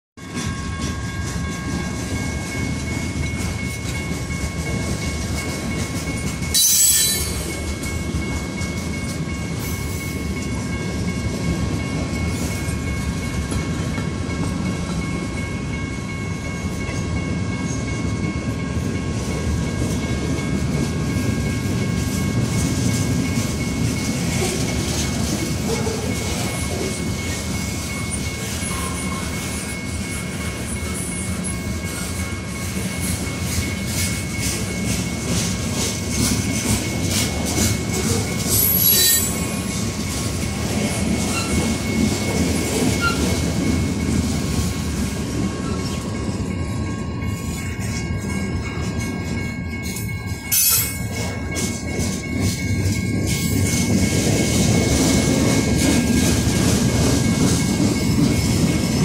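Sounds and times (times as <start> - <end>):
high ringing tones: 0.2 - 18.8
freight train rumble and clatter: 0.2 - 59.0.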